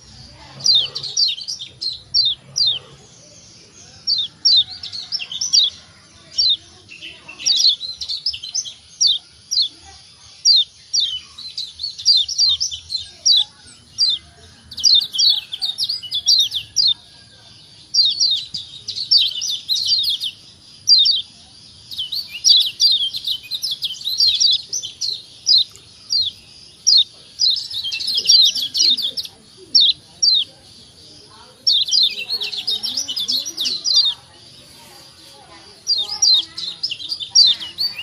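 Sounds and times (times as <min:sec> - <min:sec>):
bird chirping high downward chirps: 0:10.5 - 0:17.1, 0:17.7 - 0:30.6, 0:31.2 - 0:38.0.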